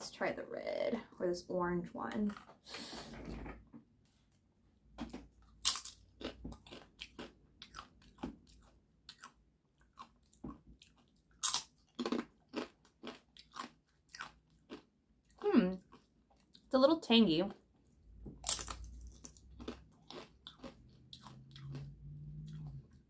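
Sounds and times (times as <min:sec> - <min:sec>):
crunching tortilla chips: 0:05.5 - 0:14.9, 0:18.4 - 0:22.0.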